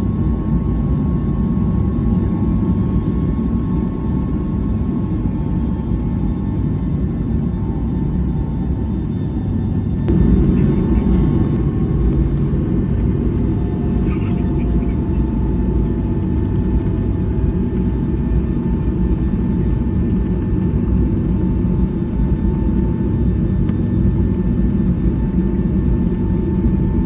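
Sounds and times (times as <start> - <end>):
faint whine: 0.0 - 17.4
aircraft cabin engine rumble: 0.0 - 27.0.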